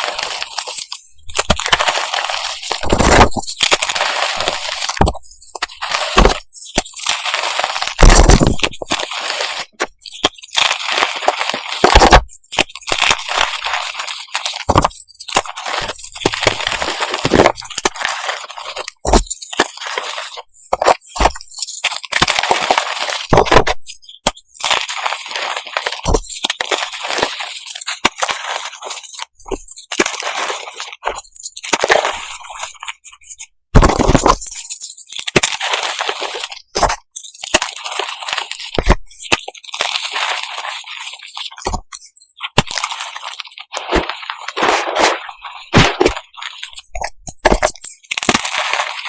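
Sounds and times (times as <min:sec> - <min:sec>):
gritty crumbling: 0:00.0 - 0:24.0, 0:33.8 - 0:49.0
chalk pieces cracking and crunching: 0:00.0 - 0:49.0.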